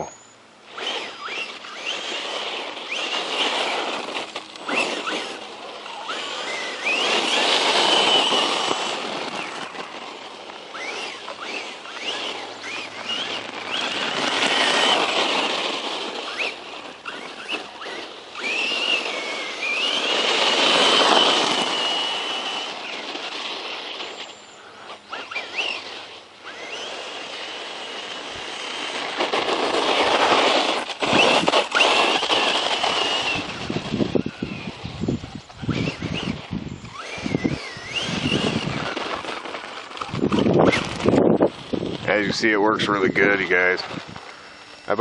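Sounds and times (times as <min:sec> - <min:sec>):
loud rushing: 0:00.0 - 0:24.1
electric motor whining: 0:00.0 - 0:45.0.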